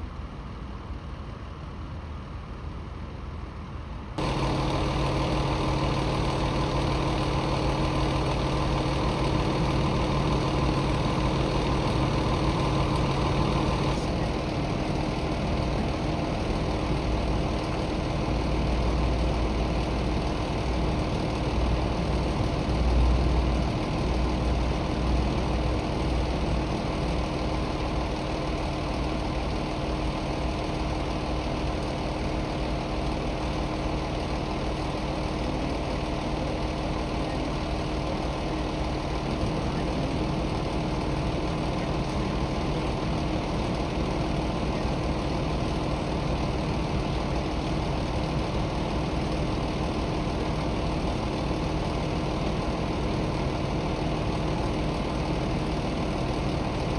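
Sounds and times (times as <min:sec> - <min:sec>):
vehicle engine idling: 0:04.2 - 0:56.9.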